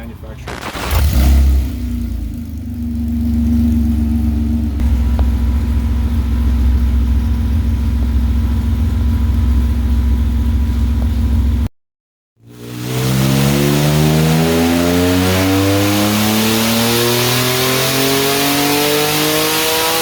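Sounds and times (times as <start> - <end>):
car engine running: 0.0 - 11.7.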